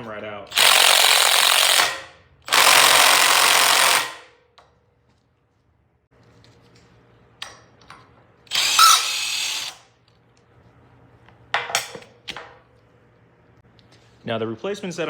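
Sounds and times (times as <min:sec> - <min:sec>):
power tool running: 0:00.5 - 0:04.2, 0:08.5 - 0:09.8.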